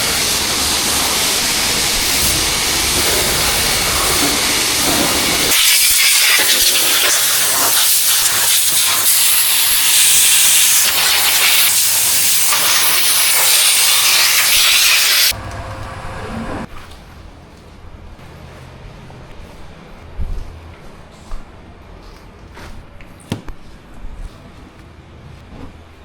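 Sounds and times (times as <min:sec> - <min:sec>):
pressure washer spraying: 0:00.0 - 0:15.4.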